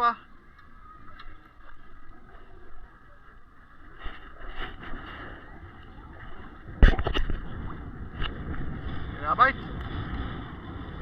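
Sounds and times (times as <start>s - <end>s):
water around a kayak: 0.0s - 11.0s
water sloshing: 0.0s - 11.0s
wind noise: 4.0s - 11.0s.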